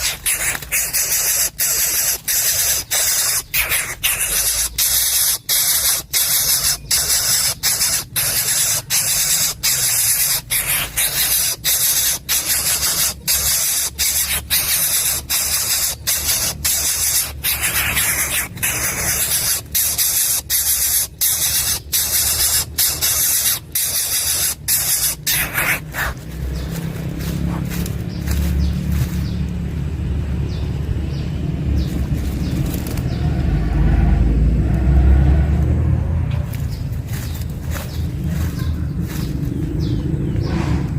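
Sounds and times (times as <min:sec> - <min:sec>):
bird nestling rasping hiss: 0:00.0 - 0:29.3.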